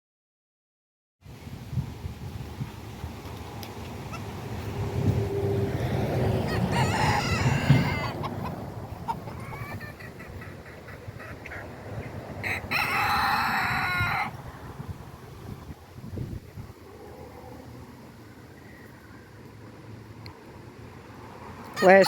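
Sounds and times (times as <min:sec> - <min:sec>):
rooster crowing: 0:06.4 - 0:08.5, 0:12.4 - 0:14.4, 0:21.7 - 0:22.0.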